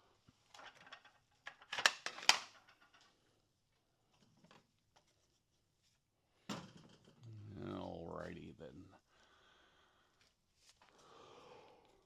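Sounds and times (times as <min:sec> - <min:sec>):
hard objects rattling and clicking: 0:00.5 - 0:03.1.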